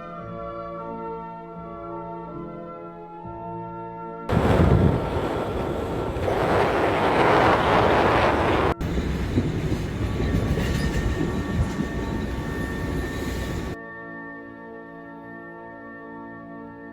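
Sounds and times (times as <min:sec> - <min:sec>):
train rumbling and rattling on rails: 0:04.3 - 0:13.8.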